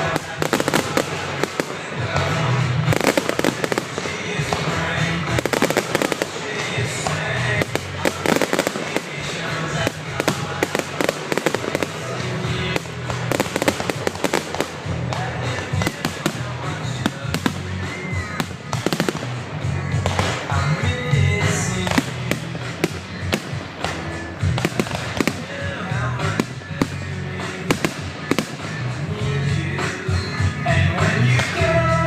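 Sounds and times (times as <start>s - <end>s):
fireworks bangs and crackles: 0.0s - 32.0s
music playing: 0.0s - 32.0s.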